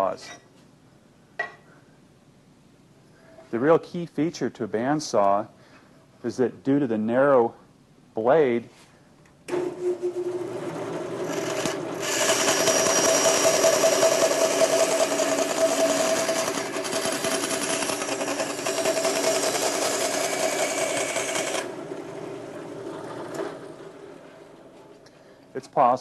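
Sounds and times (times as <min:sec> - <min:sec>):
bandsaw motor running: 0:09.5 - 0:24.5
bandsaw blade rasping through wood: 0:11.2 - 0:21.7.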